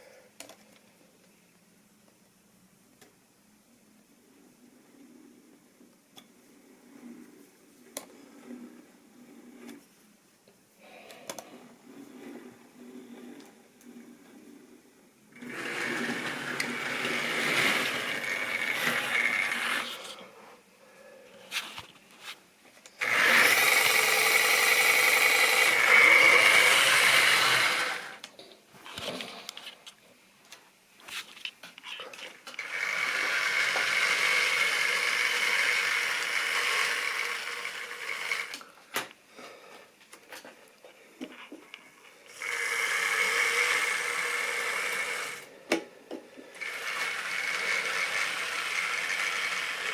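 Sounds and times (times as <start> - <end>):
model train motor whirring: 15.3 - 20.2, 23.0 - 28.3, 32.4 - 38.6, 42.3 - 45.5, 46.6 - 49.9.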